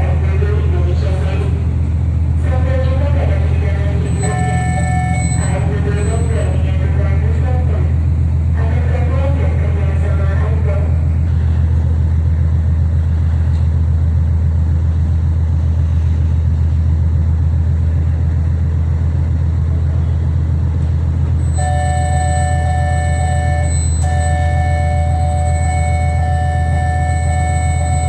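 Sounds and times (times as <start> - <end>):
ferry engines rumbling: 0.0 - 28.0
steady multi-pitch tone: 2.5 - 7.4, 21.4 - 28.0.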